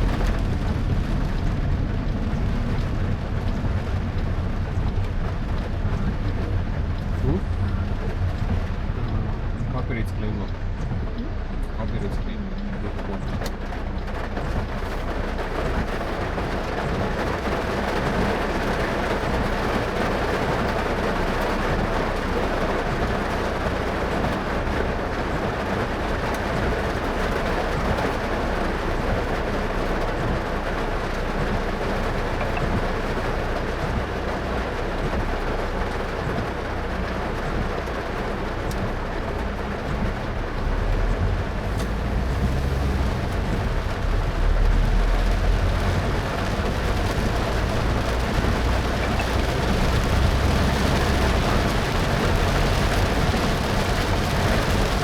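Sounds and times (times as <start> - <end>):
deep car rumble: 0.0 - 55.0
heavy rain: 0.0 - 55.0
tyres hissing on wet road: 11.3 - 55.0.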